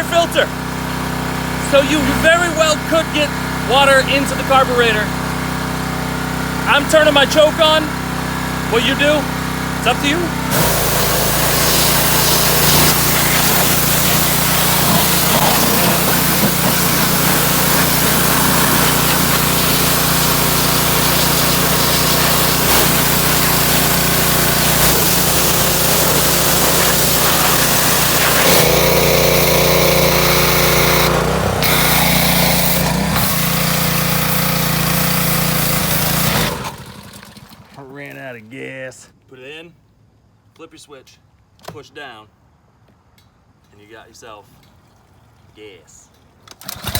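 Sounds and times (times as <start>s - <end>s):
snowblower engine running: 0.0s - 37.8s, 46.6s - 46.9s.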